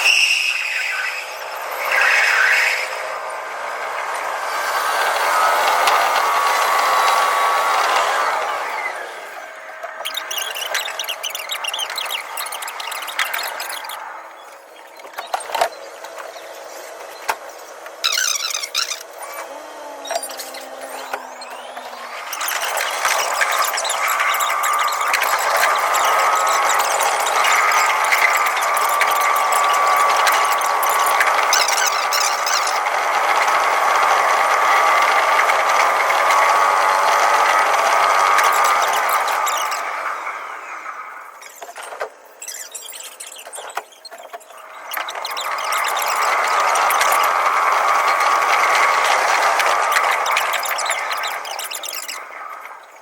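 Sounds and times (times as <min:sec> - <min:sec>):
high-pitched squeal: 0:00.0 - 0:16.9, 0:17.6 - 0:53.0
electric train hum: 0:00.0 - 0:42.4, 0:44.5 - 0:53.0
wheels clicking over rail joints: 0:03.7 - 0:08.9, 0:09.6 - 0:40.6, 0:41.4 - 0:53.0.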